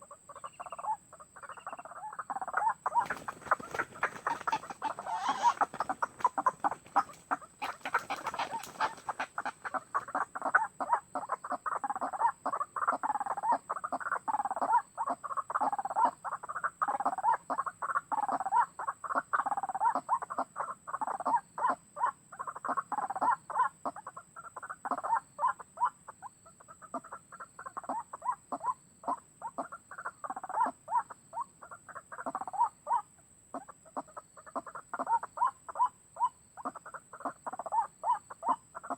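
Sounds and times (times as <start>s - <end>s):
waterhen calling rapidly: 1.5s - 12.3s.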